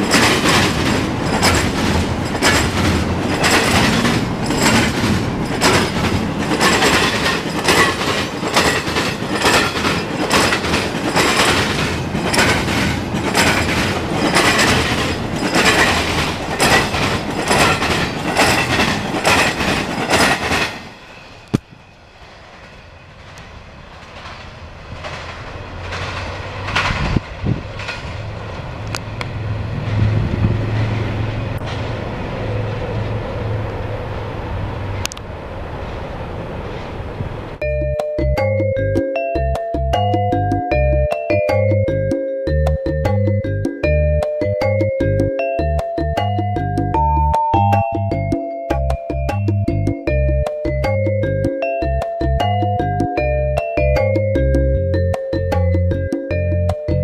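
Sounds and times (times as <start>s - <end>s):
train wheels clattering over rails: 0.0s - 21.6s, 22.2s - 33.2s.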